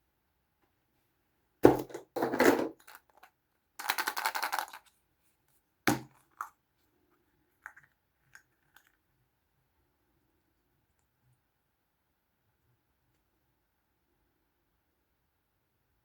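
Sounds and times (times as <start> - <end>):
plastic toys knocking: 1.6 - 2.9.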